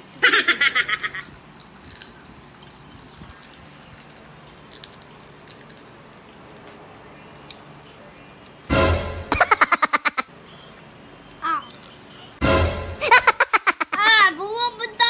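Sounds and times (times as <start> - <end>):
foil candy wrapper crinkling: 0.0 - 8.7, 10.5 - 12.4.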